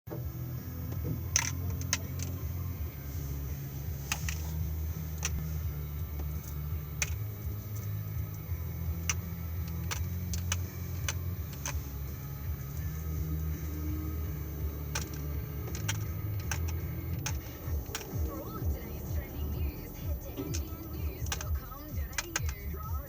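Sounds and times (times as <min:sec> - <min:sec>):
sharp clicks and rattles: 0:00.6 - 0:23.0.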